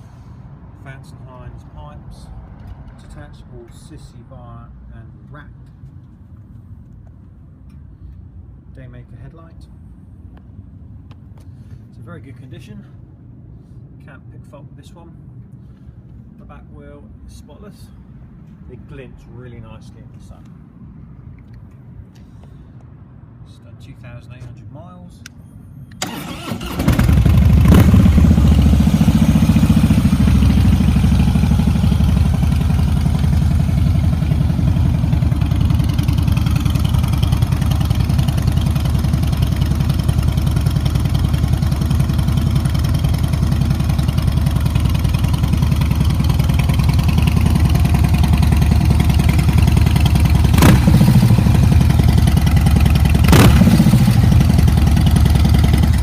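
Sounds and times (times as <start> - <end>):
motorcycle engine idling: 26.0 - 56.0.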